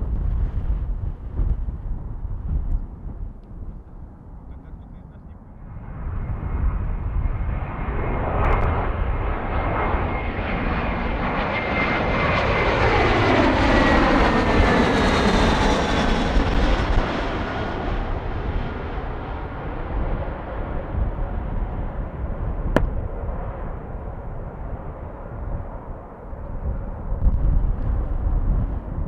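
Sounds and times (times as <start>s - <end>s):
jet airliner passing: 0.0s - 29.0s.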